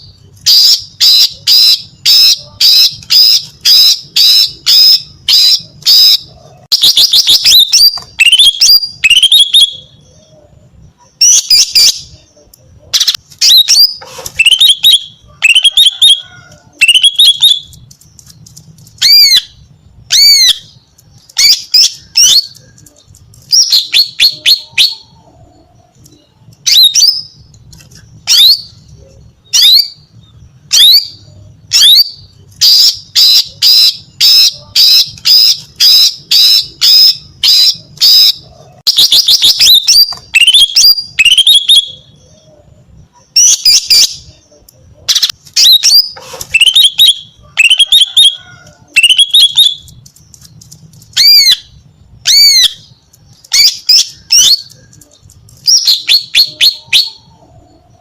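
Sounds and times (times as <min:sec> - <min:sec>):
bird calling with whistled notes: 0:00.0 - 0:18.4, 0:19.0 - 0:58.0
bird trill: 0:00.0 - 0:58.0.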